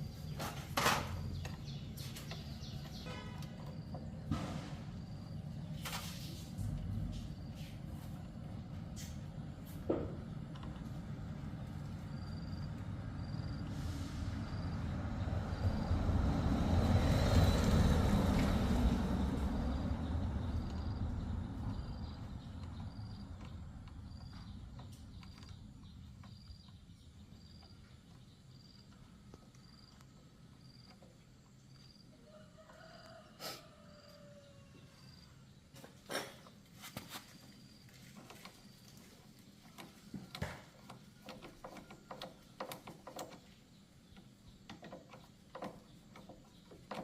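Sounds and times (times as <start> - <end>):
vehicle passing by: 0.1 - 24.8.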